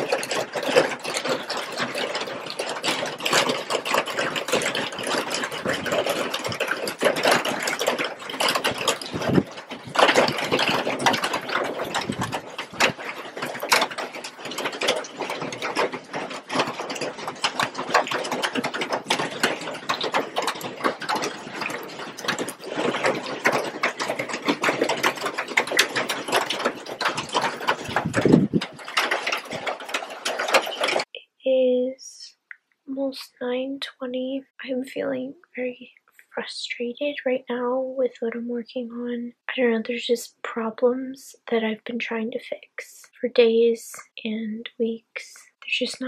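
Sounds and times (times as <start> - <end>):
heavy rain on water and concrete: 0.0 - 31.1.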